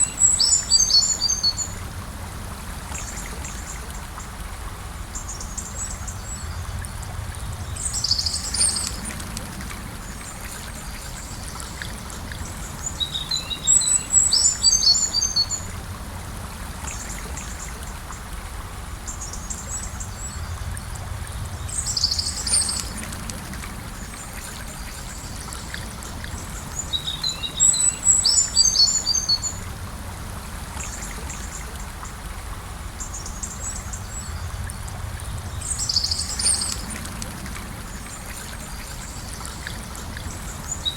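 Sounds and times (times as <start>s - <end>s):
river flowing: 0.0s - 40.9s
small birds chirping: 7.6s - 9.2s, 10.1s - 15.7s, 21.6s - 23.1s, 24.9s - 29.6s, 35.3s - 37.1s.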